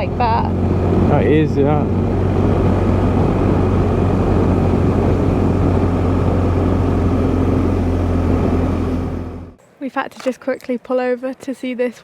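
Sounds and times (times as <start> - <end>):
motorcycle engine cruising: 0.0 - 9.6.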